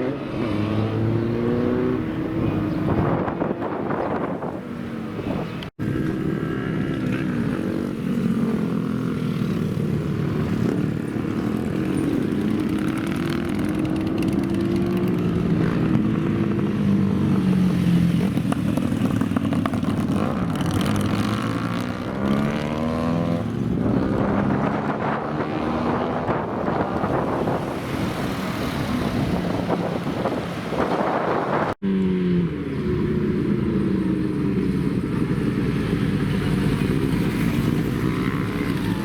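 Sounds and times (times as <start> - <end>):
motorcycle engines revving: 0.0 - 39.0.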